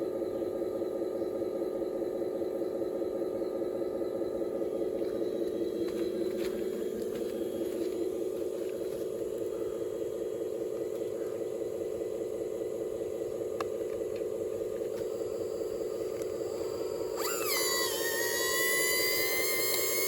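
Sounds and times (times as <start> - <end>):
high motor whine: 0.0 - 20.0
low electric motor hum: 0.0 - 20.0.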